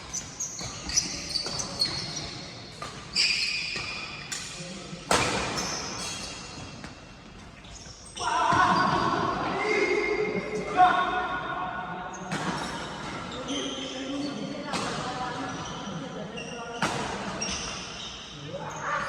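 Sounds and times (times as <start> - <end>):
shoes squeaking on court floor: 0.0 - 9.6, 12.1 - 19.0
racket hitting shuttlecock: 2.8 - 6.1.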